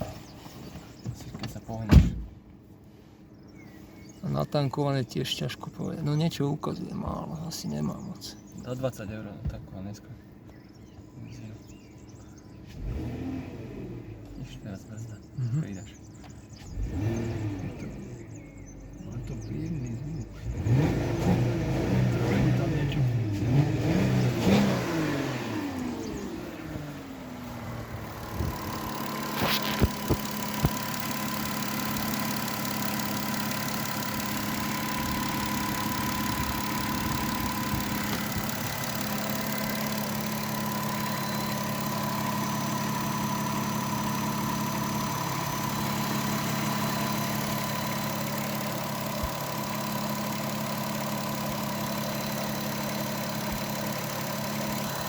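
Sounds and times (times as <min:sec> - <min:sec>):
car engine idling: 0:23.9 - 0:55.0
sharp clicks: 0:28.1 - 0:55.0.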